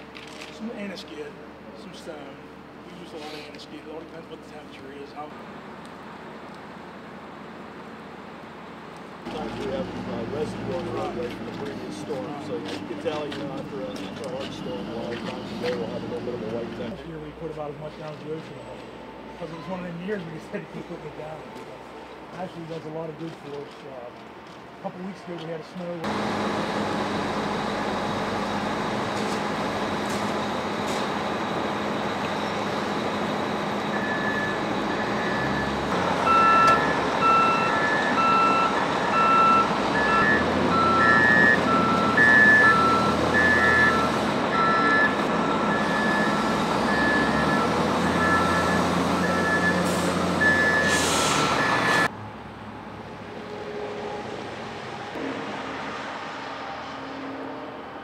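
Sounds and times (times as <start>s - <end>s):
truck engine running: 26.0s - 53.4s
back-up alarms beeping: 33.8s - 52.1s.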